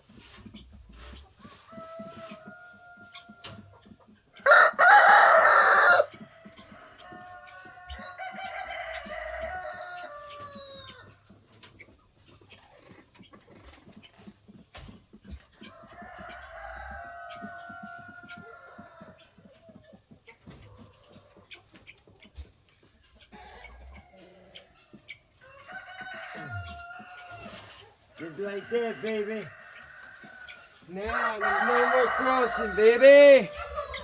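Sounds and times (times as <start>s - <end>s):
roosters crowing: 4.4s - 11.2s, 15.8s - 19.2s, 25.4s - 34.0s.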